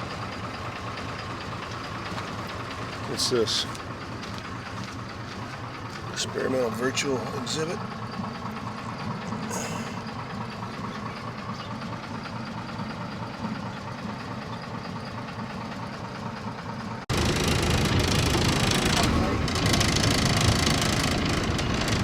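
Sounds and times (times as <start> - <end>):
bus engine running: 0.0 - 22.0
louder engine rumble: 0.0 - 22.0.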